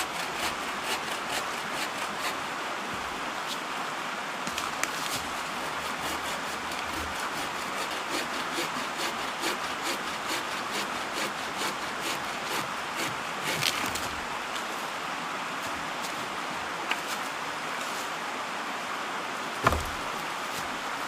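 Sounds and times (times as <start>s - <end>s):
bucksaw cutting wood: 0.0s - 2.4s, 5.0s - 14.1s, 19.6s - 20.2s.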